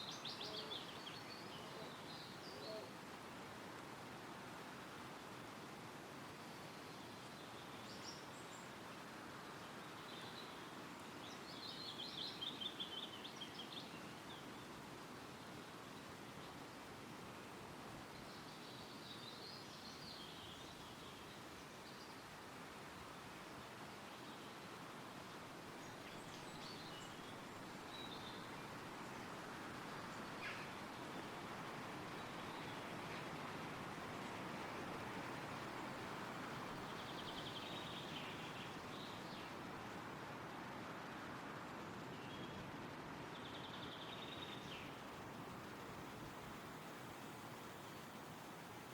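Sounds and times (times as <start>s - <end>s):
songbirds singing: 0.0s - 2.9s, 9.5s - 14.5s, 25.8s - 39.6s, 43.4s - 48.9s
wind rustling through trees: 0.0s - 48.9s
faint bird chirps: 30.1s - 30.8s.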